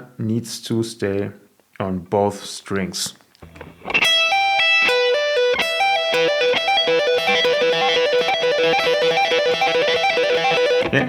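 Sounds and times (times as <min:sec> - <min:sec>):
electric guitar lick: 0:03.4 - 0:11.0.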